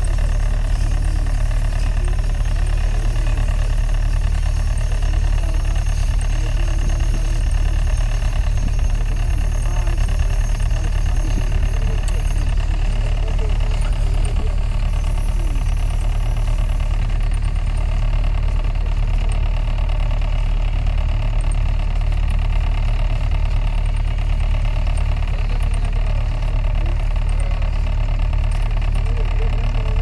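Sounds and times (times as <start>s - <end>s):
boat engine drone: 0.0s - 30.0s.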